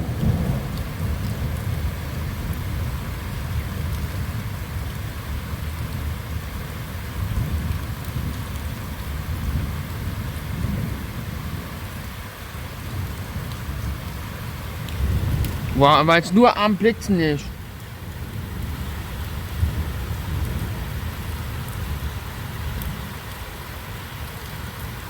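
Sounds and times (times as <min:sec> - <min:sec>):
low thunder rumbling: 0:00.0 - 0:02.6
steady rain falling: 0:00.0 - 0:25.0.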